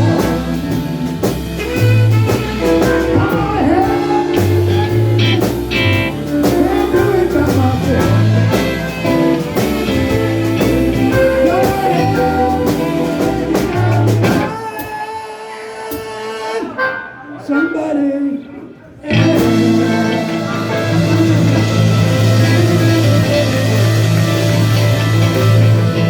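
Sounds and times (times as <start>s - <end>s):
bass line: 0.0s - 14.6s, 19.1s - 26.0s
electric guitar playing: 0.0s - 14.6s, 19.1s - 26.0s
steady drum beat: 0.0s - 15.0s, 19.1s - 26.0s
live blues band: 0.0s - 17.3s, 19.0s - 26.0s.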